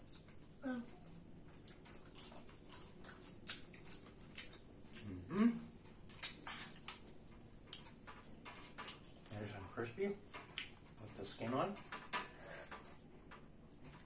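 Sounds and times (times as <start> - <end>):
chewing and mouth clicks: 0.0 - 9.4, 10.2 - 11.1
person humming: 5.0 - 5.7.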